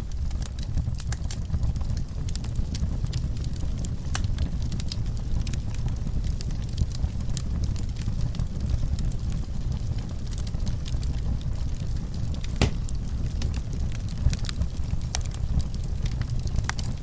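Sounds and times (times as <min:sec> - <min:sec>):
wood fire crackling: 0:00.0 - 0:17.0
fire pop: 0:11.7 - 0:15.7.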